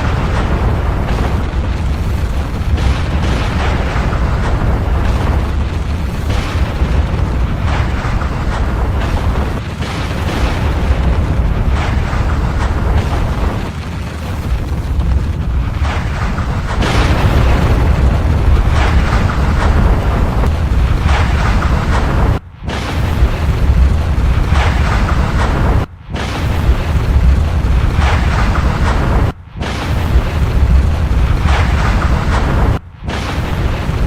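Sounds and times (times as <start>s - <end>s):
deep volcanic rumble: 0.0s - 34.0s
volcanic blasts and bursts: 0.0s - 34.0s.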